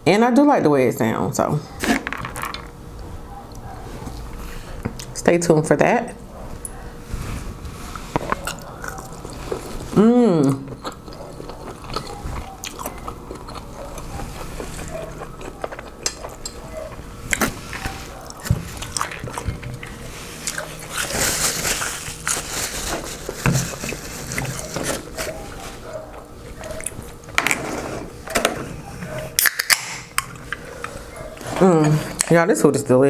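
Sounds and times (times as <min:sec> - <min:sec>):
person chewing and biting: 0:07.9 - 0:27.4, 0:29.3 - 0:31.4.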